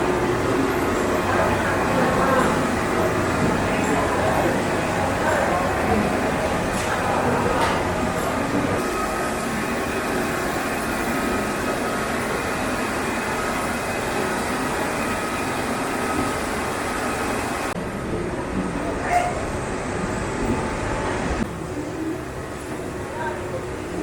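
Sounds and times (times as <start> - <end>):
machinery running: 0.0 - 24.0.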